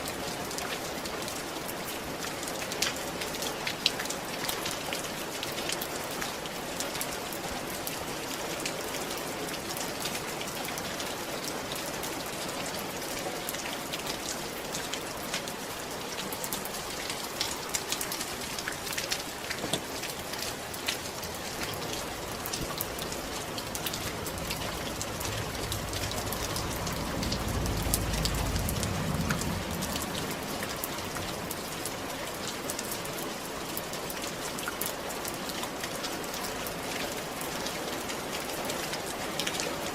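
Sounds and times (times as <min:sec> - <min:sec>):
rain on a roof: 0:00.0 - 0:39.9
low rumble: 0:21.7 - 0:31.3.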